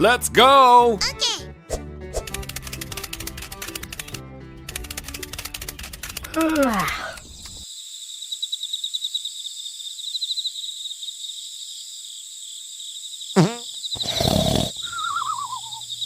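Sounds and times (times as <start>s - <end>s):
animal-like roar: 14.0s - 14.8s
high warbling chirp: 14.8s - 16.0s.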